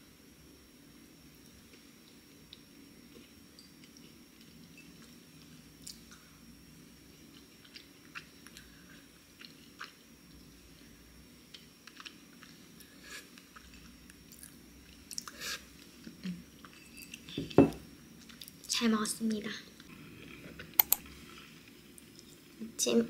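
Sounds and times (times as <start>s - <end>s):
chewing cookie crumbs: 7.1s - 15.4s.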